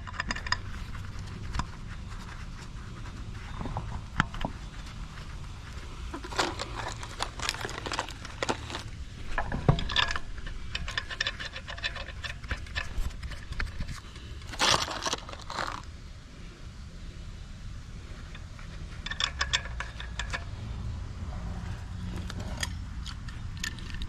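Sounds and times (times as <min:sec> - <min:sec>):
metal parts and tools clinking: 0:00.0 - 0:01.7, 0:06.1 - 0:15.9, 0:18.3 - 0:20.6, 0:21.6 - 0:24.0.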